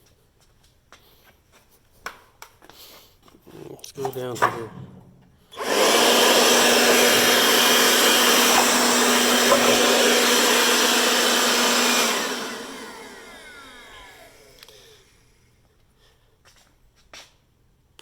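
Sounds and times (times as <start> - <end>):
leaf blower running: 5.5 - 15.6
fan whine spinning down: 5.6 - 15.6.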